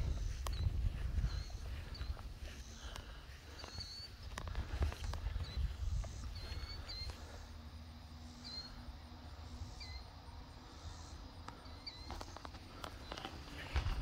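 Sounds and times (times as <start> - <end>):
low microphone rumble: 0.0 - 2.6.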